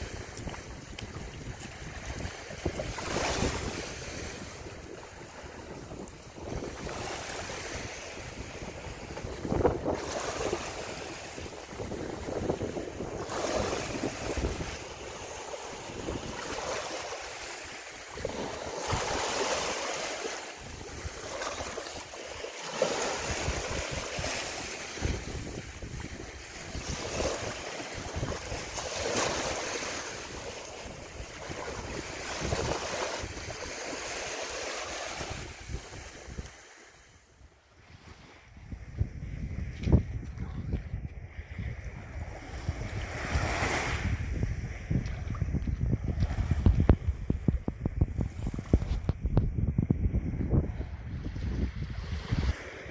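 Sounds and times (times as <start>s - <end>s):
wind buffeting microphone: 0.0s - 36.7s, 37.9s - 52.9s
sea water splashing: 0.0s - 37.0s.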